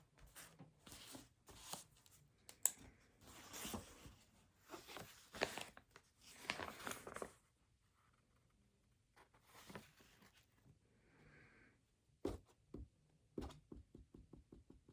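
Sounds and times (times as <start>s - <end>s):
rustling crinkling handling noise: 3.2s - 7.5s.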